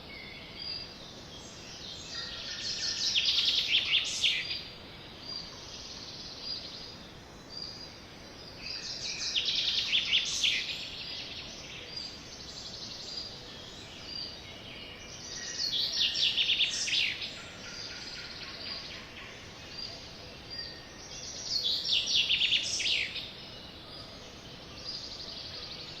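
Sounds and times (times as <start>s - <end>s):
background hiss: 0.0s - 26.0s.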